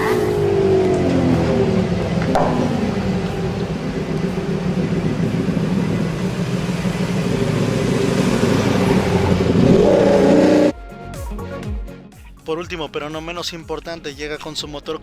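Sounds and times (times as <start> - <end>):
motorcycle engine revving: 0.0 - 10.7.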